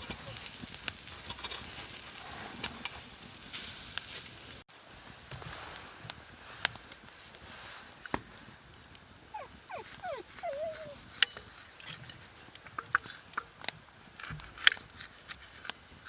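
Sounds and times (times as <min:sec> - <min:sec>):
small dog whining: 0:09.3 - 0:11.0.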